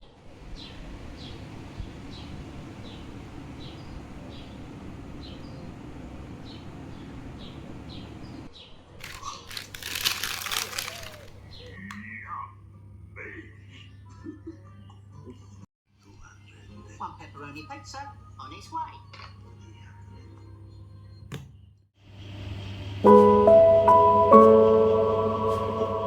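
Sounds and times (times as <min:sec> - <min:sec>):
steady low rumble: 0:00.3 - 0:08.5
small bird chirping: 0:00.4 - 0:08.5
loud crinkling and rustling: 0:00.5 - 0:11.8.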